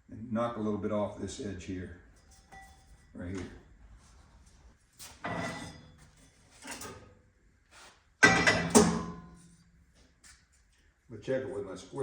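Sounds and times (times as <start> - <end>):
steel tubing knocking and clanking: 8.2 - 9.4.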